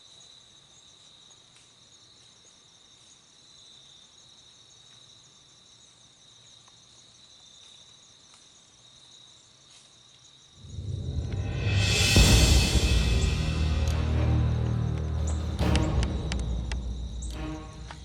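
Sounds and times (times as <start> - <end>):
crickets trilling: 0.0 - 18.0
loud music: 11.1 - 18.0.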